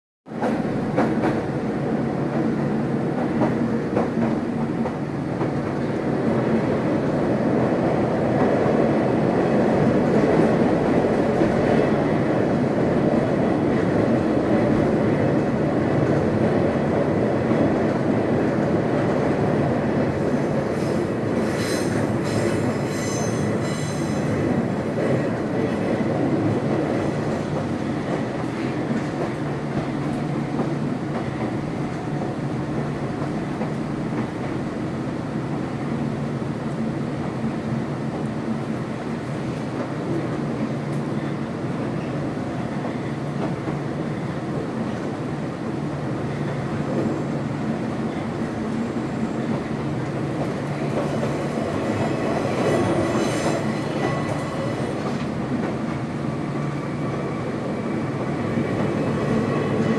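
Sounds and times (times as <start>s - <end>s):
train wheels rumbling on rails: 0.3s - 59.9s
high wheel squeal: 21.6s - 24.4s.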